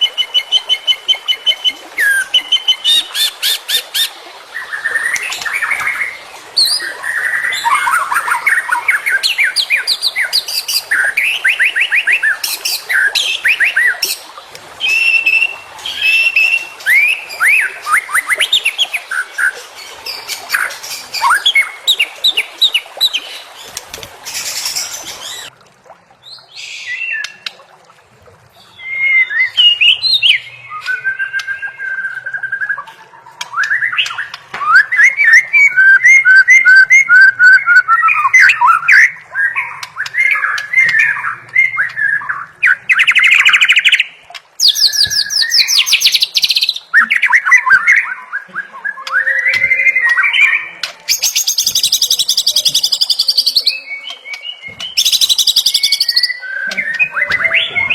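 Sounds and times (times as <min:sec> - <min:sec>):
bird singing whistled song: 0:28.6 - 0:57.9.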